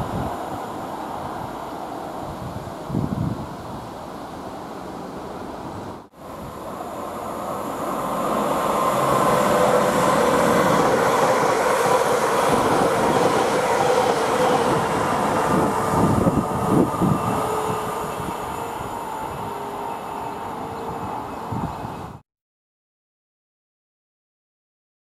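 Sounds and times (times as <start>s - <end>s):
train wheels rumbling on rail: 6.2s - 22.2s.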